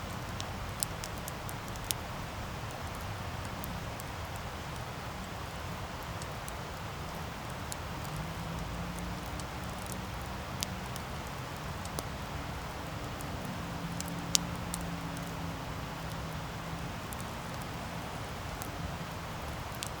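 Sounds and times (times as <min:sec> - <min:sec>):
campfire crackling and popping: 0:00.0 - 0:20.0
campfire hiss: 0:00.0 - 0:20.0.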